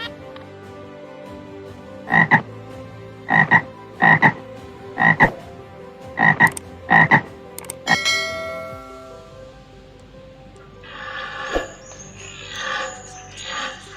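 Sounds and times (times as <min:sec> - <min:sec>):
bell-like chime: 0:07.9 - 0:09.5, 0:11.7 - 0:13.9.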